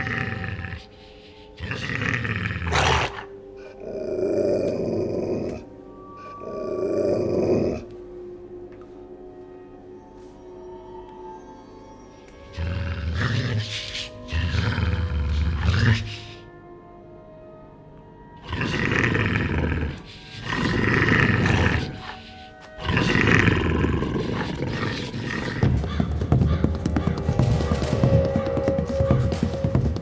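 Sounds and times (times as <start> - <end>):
creature roaring: 0.0 - 5.7, 6.3 - 7.9, 12.6 - 16.4, 18.4 - 30.0
tense music: 0.0 - 30.0.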